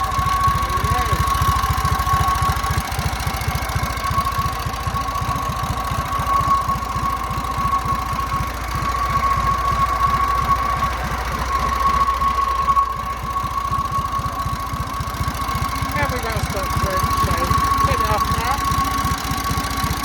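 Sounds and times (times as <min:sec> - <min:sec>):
generator whine: 0:00.0 - 0:20.0
stationary engine running: 0:00.0 - 0:20.0.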